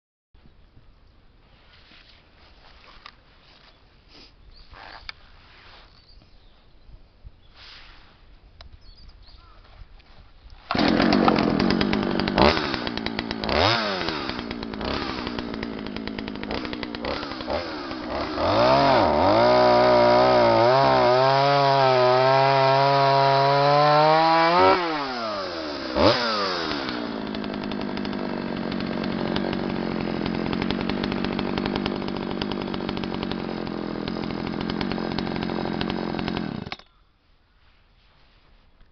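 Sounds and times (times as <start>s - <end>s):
chainsaw starting idling and revving: 10.7s - 36.8s.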